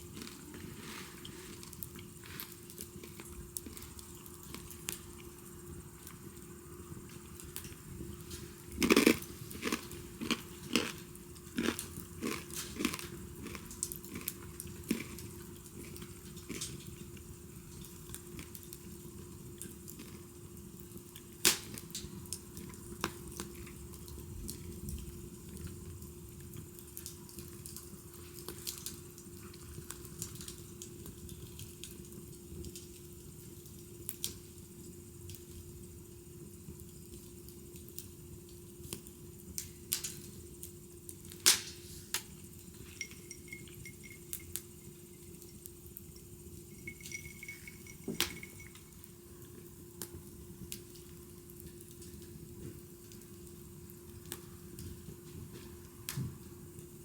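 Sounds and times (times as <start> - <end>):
wood fire crackling: 0.0 - 57.0
burning wood popping: 21.3 - 24.0, 41.2 - 48.9.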